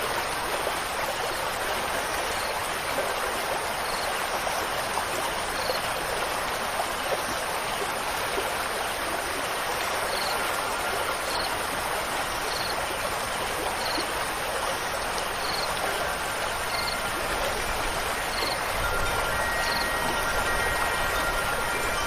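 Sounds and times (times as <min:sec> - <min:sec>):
rushing stream water: 0:00.0 - 0:22.0
wind chime tones: 0:14.8 - 0:22.0.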